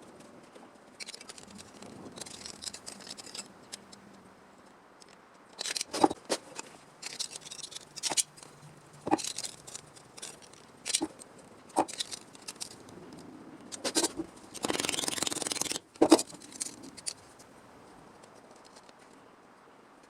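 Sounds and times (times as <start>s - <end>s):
metal shears snipping: 5.6s - 12.8s, 13.7s - 17.3s
light scraping on metal: 5.6s - 19.2s.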